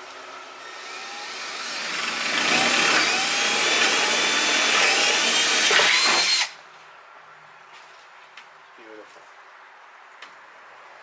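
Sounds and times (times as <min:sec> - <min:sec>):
electric power drill running: 0:00.6 - 0:06.6.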